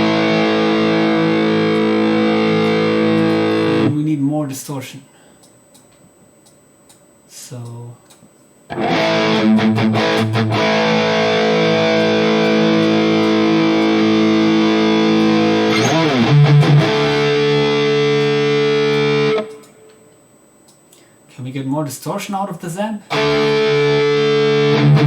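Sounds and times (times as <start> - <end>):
distorted electric guitar chords: 0.0 - 4.0, 8.7 - 20.1, 23.1 - 25.0.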